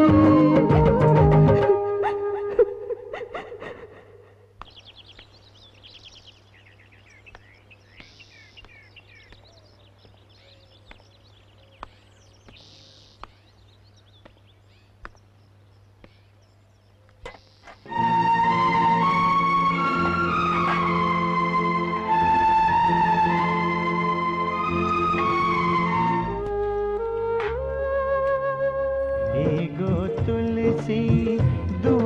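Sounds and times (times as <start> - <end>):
song playing: 0.0 - 2.0, 17.9 - 27.8, 29.1 - 32.0
birds chirping: 2.2 - 27.2.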